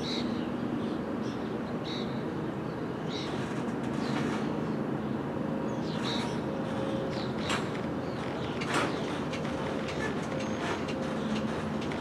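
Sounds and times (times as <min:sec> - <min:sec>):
train cars creaking and squeaking: 0:03.2 - 0:04.9, 0:05.8 - 0:12.0
train wheels rumbling on rail: 0:03.2 - 0:12.0.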